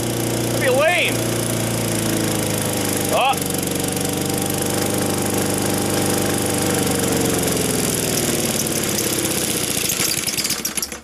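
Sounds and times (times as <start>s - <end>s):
lawn mower engine running flat out: 0.0s - 11.0s.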